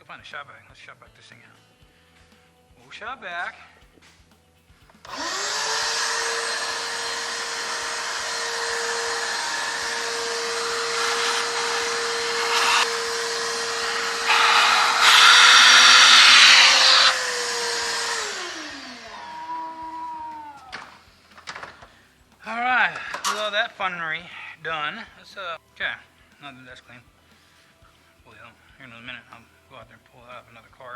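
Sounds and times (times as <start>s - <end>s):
shop vacuum motor whine: 4.9s - 23.9s.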